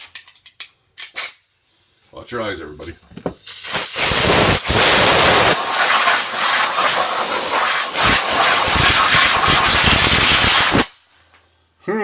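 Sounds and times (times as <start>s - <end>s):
compressed air hissing: 3.3s - 11.0s.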